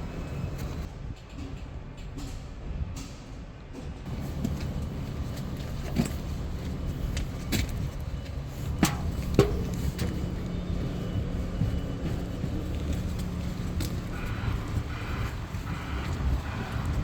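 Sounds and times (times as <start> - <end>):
low engine rumble: 4.0 - 17.0.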